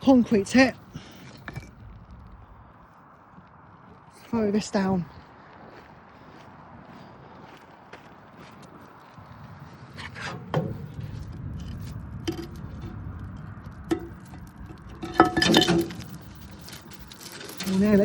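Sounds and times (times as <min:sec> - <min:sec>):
concrete knocking down a shaft: 0:13.9 - 0:16.2.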